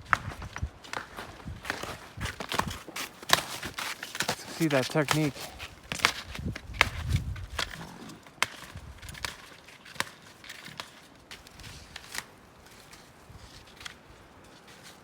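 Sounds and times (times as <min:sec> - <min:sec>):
ski poles planting in snow: 0:00.0 - 0:15.0
ski touring gear clicks: 0:01.7 - 0:13.1.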